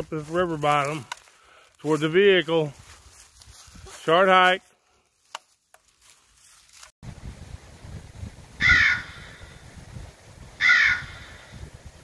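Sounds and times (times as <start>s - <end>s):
bird harsh calls: 10.6s - 11.5s.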